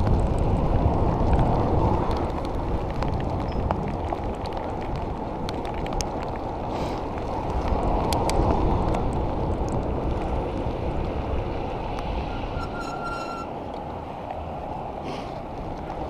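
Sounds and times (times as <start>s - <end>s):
sharp ticks and clicks: 0.0s - 6.6s, 7.2s - 10.4s
wind rushing over microphone: 0.0s - 16.0s.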